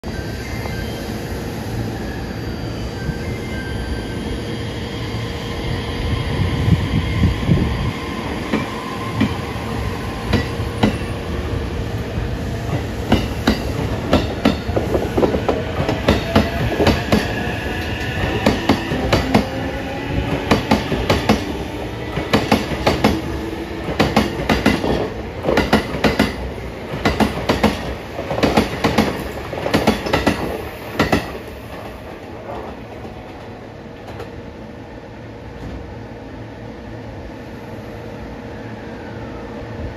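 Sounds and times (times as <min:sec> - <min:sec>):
train wheels clacking over rail joints: 0:23.8 - 0:32.0.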